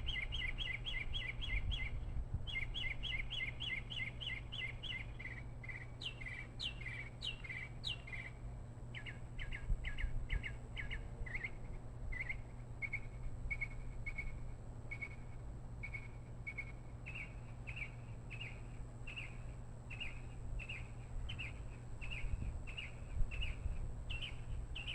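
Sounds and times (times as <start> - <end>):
bird chirping: 0.0 - 14.3, 15.8 - 24.9
steady low hum: 0.0 - 24.9.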